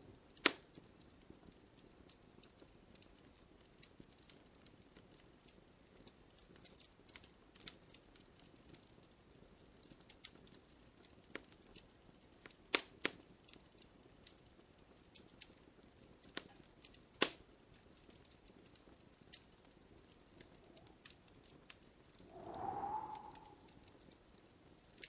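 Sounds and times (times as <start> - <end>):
wood fire crackling: 0.1 - 25.0
fire hissing: 22.3 - 23.9.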